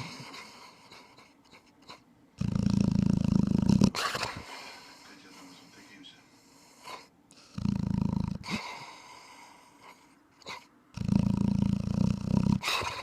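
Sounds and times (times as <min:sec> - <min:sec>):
dog snoring: 0:00.0 - 0:05.1, 0:06.4 - 0:13.0
breathy exhale: 0:08.5 - 0:10.2.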